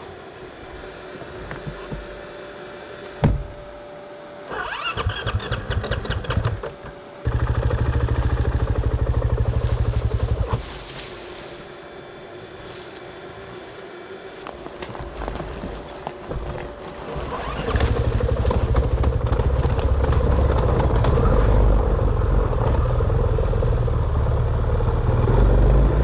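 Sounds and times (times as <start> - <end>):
dirt bike engine starting: 4.5 - 10.6, 17.1 - 24.0.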